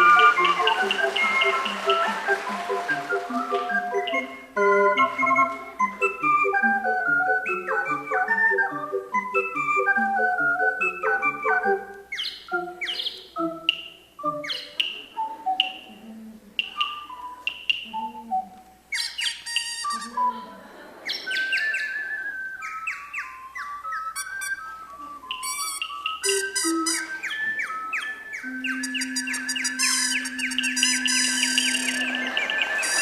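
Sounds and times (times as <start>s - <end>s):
ocarinas imitating birdsong: 12.1s - 33.0s.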